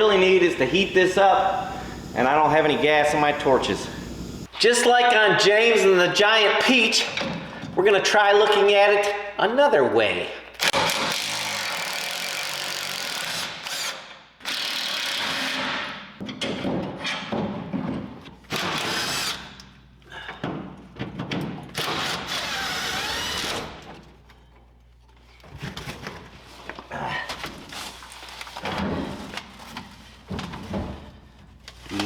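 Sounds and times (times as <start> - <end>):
power tool running: 0.4 - 4.5.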